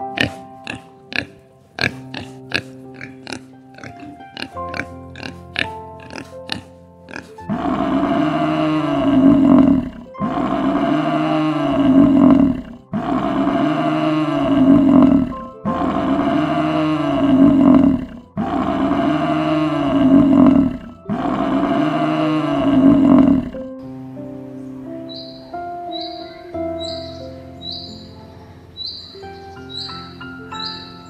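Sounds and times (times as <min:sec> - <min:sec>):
deep animal roar: 0:00.0 - 0:23.7
background music: 0:00.0 - 0:31.0.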